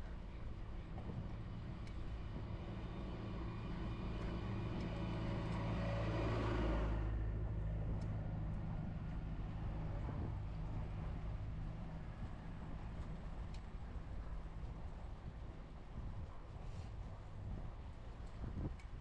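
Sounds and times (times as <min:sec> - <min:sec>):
low steady rumble: 0:00.0 - 0:19.0
vehicle passing: 0:01.4 - 0:13.0.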